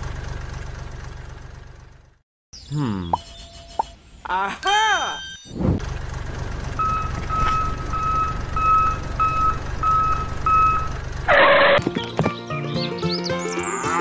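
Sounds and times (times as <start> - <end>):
low engine rumble: 0.0 - 4.3, 5.6 - 12.2
reversing alarm beeping: 3.2 - 4.0, 6.8 - 10.9.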